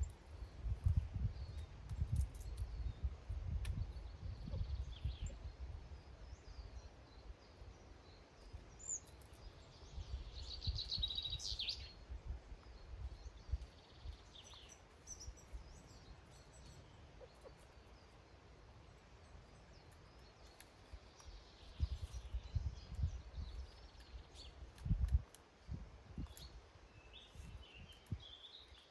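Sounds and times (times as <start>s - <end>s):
small birds chirping: 0.0s - 28.9s.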